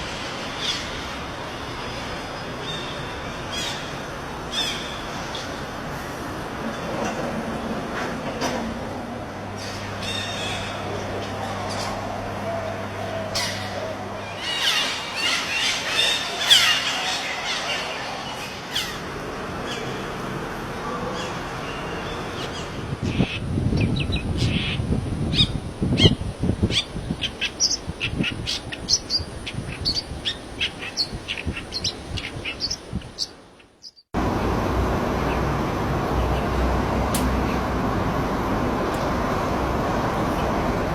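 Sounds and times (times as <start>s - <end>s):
gliding bird calls: 25.4s - 34.1s
short high bird chirps: 28.5s - 34.0s.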